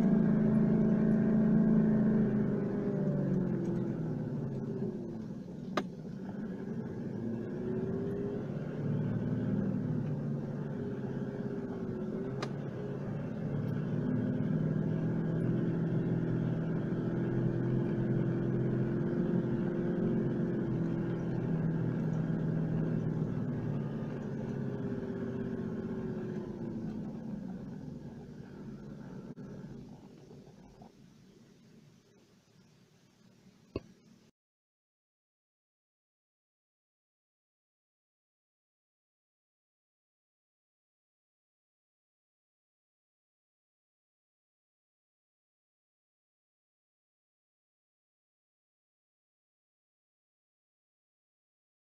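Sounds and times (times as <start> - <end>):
vehicle engine on dirt track: 0.0 - 31.5.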